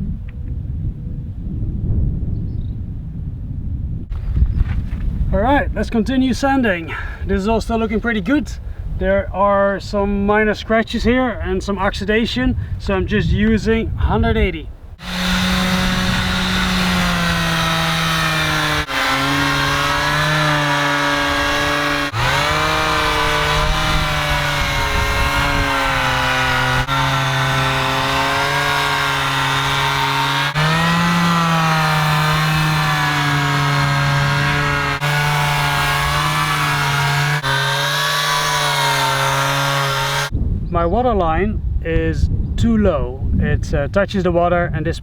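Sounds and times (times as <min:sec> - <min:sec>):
power sander running: 0:15.0 - 0:40.3.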